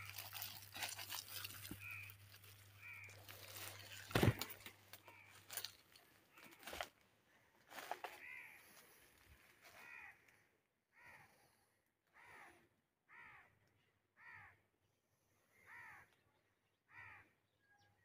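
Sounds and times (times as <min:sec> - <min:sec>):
faint short bird calls: 0:08.1 - 0:14.7, 0:15.5 - 0:16.3, 0:16.9 - 0:18.0.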